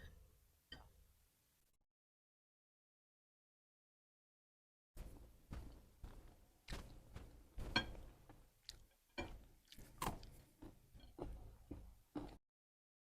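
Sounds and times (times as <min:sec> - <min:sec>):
person chewing: 0:07.7 - 0:12.4.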